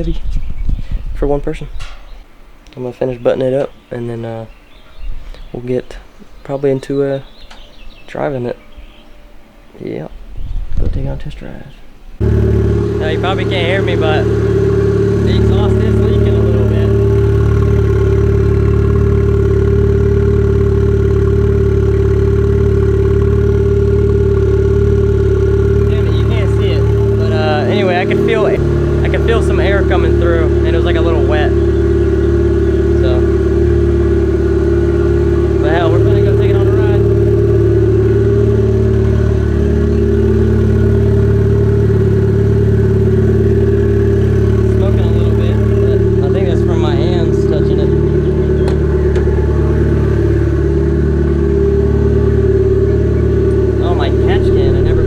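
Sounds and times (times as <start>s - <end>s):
turbocharged car engine idling: 12.2s - 55.0s.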